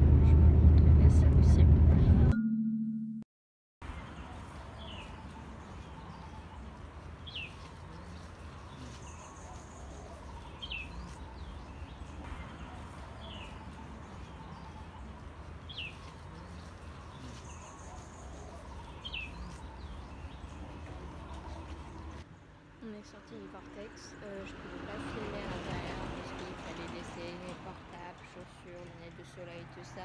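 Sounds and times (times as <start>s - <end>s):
low rumble: 0.0s - 2.4s
bird chirping: 3.9s - 22.2s.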